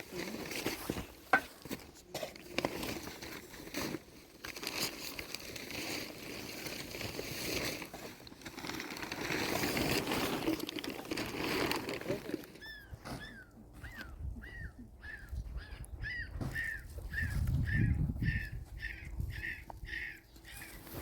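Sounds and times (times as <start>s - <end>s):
rustling and crinkling: 0.0s - 14.2s, 19.7s - 21.0s.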